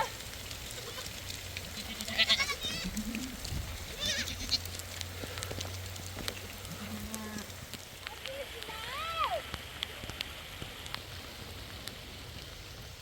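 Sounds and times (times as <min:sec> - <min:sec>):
sheep bleating: 0:00.7 - 0:01.1, 0:01.7 - 0:04.6.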